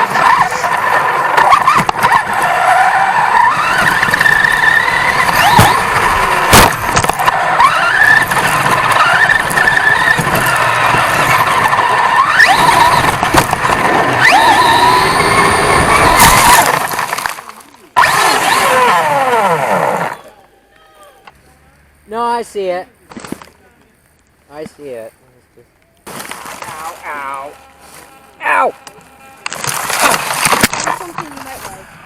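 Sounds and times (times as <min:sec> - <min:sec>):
toy truck motor whining: 0:00.0 - 0:20.5
chassis knocking on bumps: 0:03.5 - 0:17.4.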